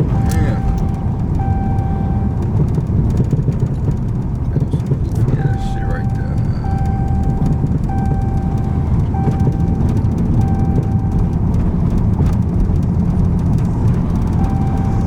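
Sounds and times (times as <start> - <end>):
repeating beep tone: 0.0 - 2.7, 5.3 - 11.4, 14.4 - 15.0
car engine and road drone: 0.0 - 15.0.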